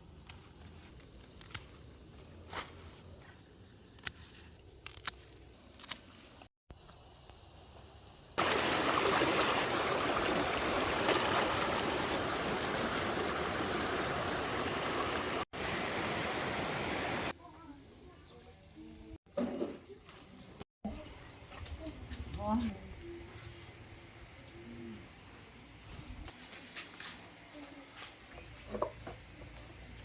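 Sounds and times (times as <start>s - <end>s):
insects chirring: 0.0s - 17.3s
stream water rushing: 8.4s - 17.3s.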